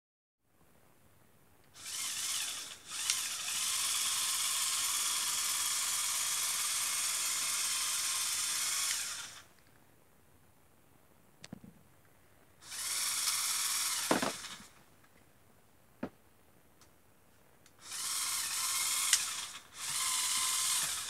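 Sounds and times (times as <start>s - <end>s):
small electric motor whirring: 1.8s - 9.5s, 12.6s - 14.7s, 17.8s - 21.0s.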